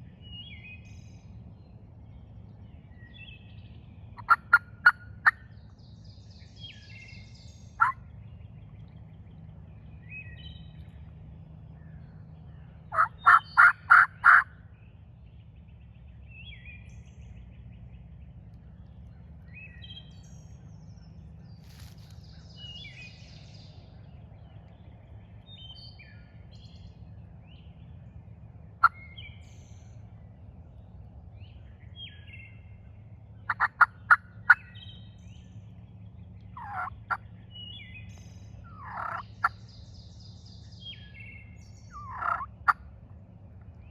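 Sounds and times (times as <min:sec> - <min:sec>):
short sharp turkey calls: 0:04.2 - 0:05.4, 0:12.9 - 0:14.5, 0:33.5 - 0:34.6, 0:36.6 - 0:37.2, 0:38.7 - 0:39.6, 0:41.9 - 0:42.8
turkey gobbling: 0:12.9 - 0:14.5, 0:33.5 - 0:34.6, 0:36.6 - 0:37.2, 0:38.8 - 0:39.5, 0:41.9 - 0:42.8.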